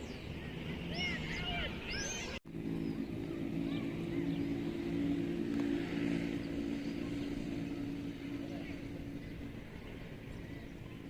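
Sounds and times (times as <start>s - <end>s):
motor running steadily: 0.0s - 11.0s.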